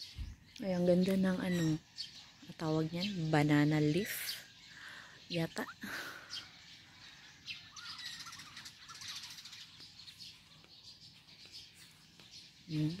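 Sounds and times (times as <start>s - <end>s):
faint birds chirping: 0.0s - 13.0s.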